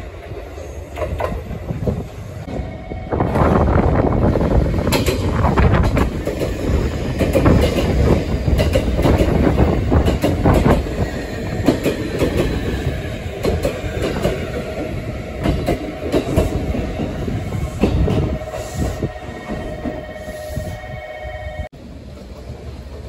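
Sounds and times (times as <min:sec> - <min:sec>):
train wheels rumbling on rail: 0:00.0 - 0:23.0
wheels clacking over rail joints: 0:04.7 - 0:17.2.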